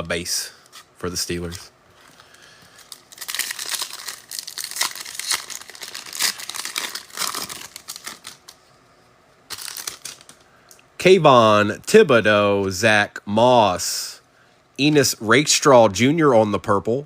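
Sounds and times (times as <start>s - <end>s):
wrapper tearing and crinkling: 2.8s - 8.6s, 9.5s - 10.4s.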